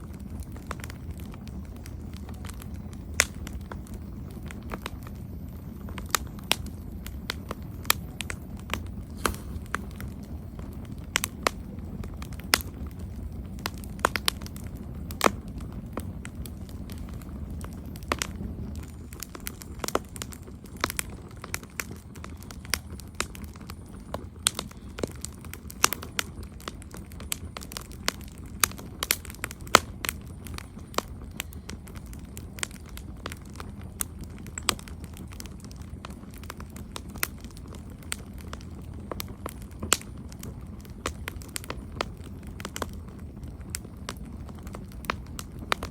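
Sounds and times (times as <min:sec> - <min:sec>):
campfire crackling: 0:00.0 - 0:45.9.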